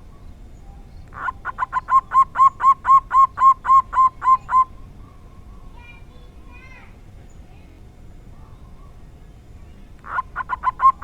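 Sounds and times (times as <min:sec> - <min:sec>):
dove cooing: 0:01.1 - 0:04.8, 0:10.0 - 0:11.0.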